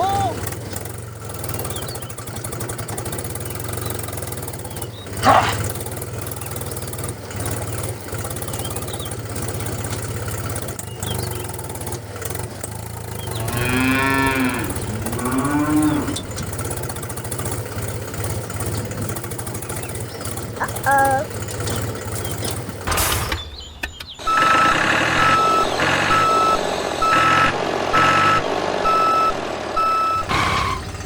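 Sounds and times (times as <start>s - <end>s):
cattle lowing: 5.1s - 5.8s, 13.2s - 17.1s
low machine hum: 13.2s - 17.2s, 23.5s - 31.0s.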